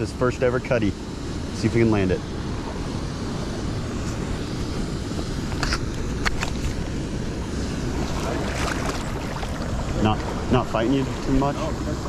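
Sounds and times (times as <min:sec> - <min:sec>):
stream flowing: 0:06.6 - 0:11.4.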